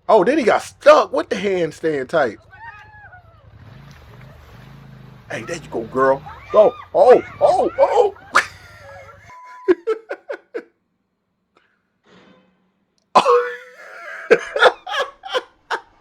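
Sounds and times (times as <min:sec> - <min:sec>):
man laughing: 0:05.3 - 0:10.8, 0:13.2 - 0:16.0.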